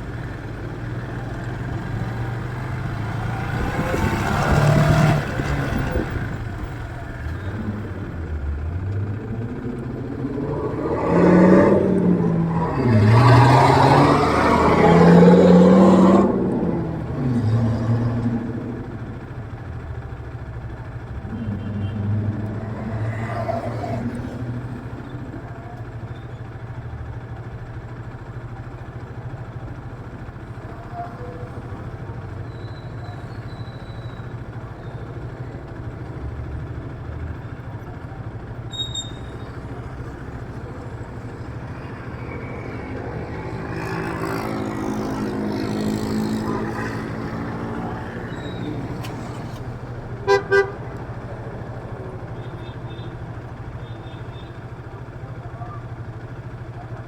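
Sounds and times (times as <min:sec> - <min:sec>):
city street traffic: 0:00.0 - 0:57.0
engine speeding up and passing: 0:01.3 - 0:19.6, 0:21.0 - 0:25.5, 0:39.6 - 0:52.4.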